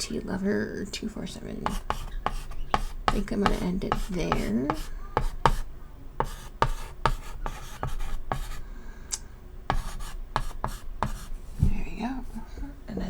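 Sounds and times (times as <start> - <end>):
chalk squeak: 1.6 - 8.6
chalk tapping and scratching: 1.6 - 8.6, 9.7 - 11.4.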